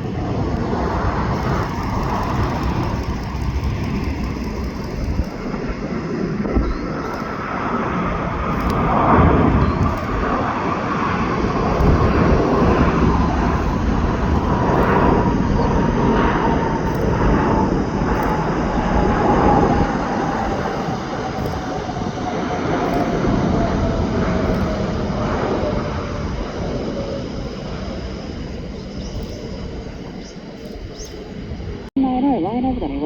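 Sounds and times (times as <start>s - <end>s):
jet engine whine falling: 0.0s - 32.9s
jet airliner engines rumbling: 0.0s - 33.0s.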